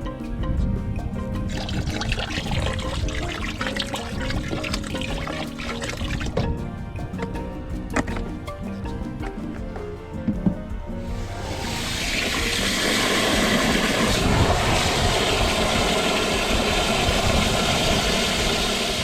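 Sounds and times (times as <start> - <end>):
background music: 0.0 - 19.0
water spraying: 1.4 - 6.6, 11.0 - 19.0.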